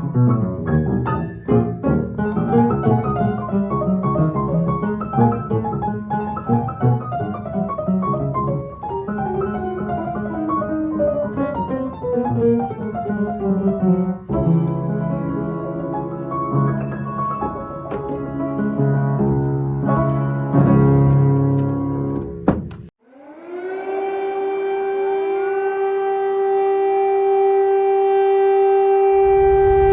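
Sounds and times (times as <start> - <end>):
piano playing melody and chords: 0.0 - 22.4.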